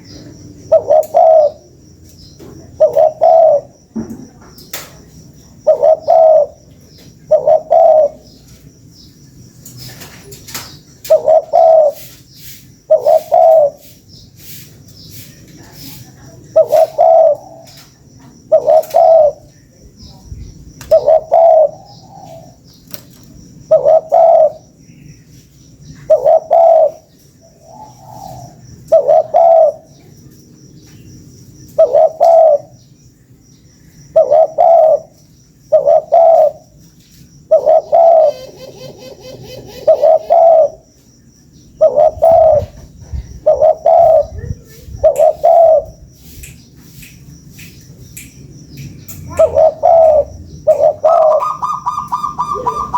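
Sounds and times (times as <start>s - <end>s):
dove cooing: 0.0s - 1.7s, 2.6s - 3.8s, 5.6s - 8.4s, 11.0s - 12.1s, 12.9s - 13.9s, 16.5s - 17.8s, 18.4s - 19.5s, 20.8s - 22.6s, 23.7s - 24.7s, 26.0s - 30.0s, 31.8s - 32.7s, 34.1s - 36.8s, 37.5s - 40.9s, 41.8s - 46.0s, 49.3s - 52.9s.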